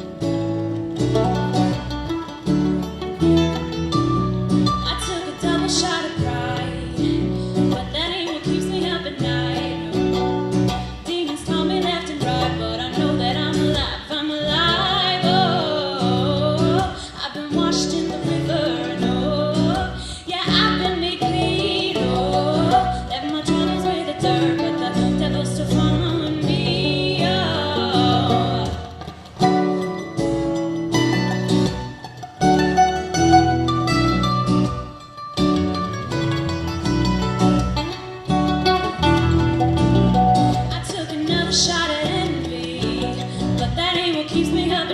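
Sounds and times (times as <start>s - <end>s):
plucked strings: 0.0s - 44.9s
strummed acoustic guitar: 0.0s - 44.9s
woman singing: 4.7s - 30.0s, 38.5s - 44.9s.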